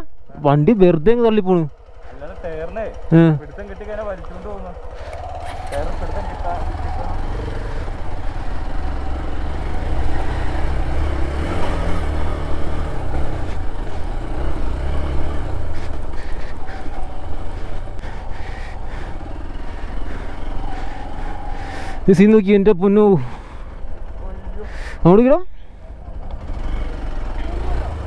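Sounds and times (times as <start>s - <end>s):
engine revving under load: 1.4s - 28.0s.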